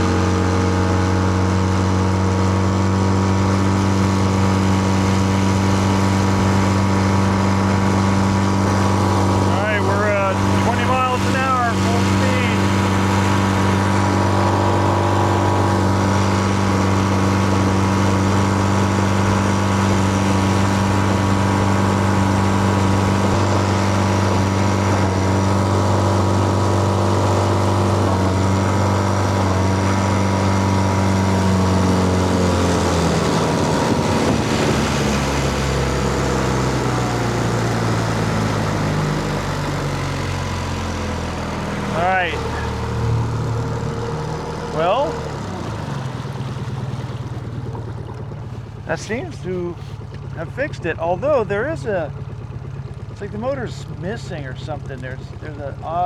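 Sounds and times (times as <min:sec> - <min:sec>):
boat motor running: 0:00.0 - 0:56.0
man talking: 0:09.4 - 0:12.7, 0:41.9 - 0:42.7, 0:44.7 - 0:45.2, 0:48.9 - 0:52.2, 0:53.2 - 0:56.0.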